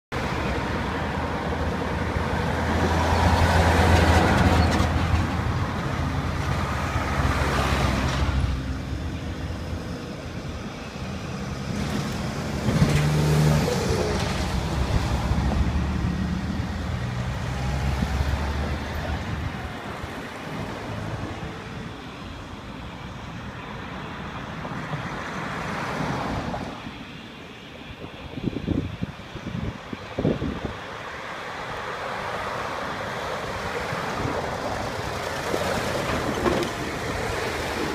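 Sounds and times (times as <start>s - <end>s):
vehicles passing: 0.1s - 37.9s.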